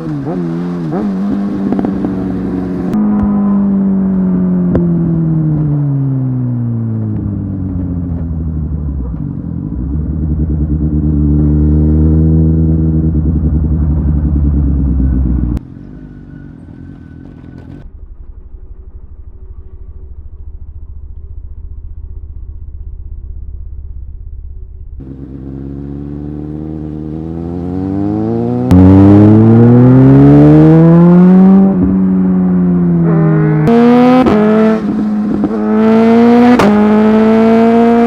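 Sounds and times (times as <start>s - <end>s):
low rumble: 0.0s - 15.6s, 17.0s - 27.4s
motorcycle engine revving: 0.0s - 19.7s, 25.0s - 38.0s.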